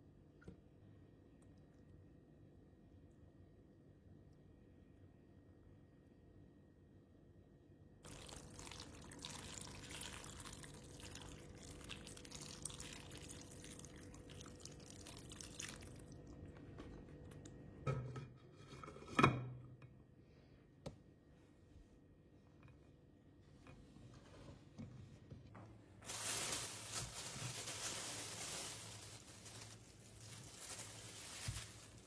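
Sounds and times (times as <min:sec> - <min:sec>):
water pouring: 0:08.0 - 0:16.6.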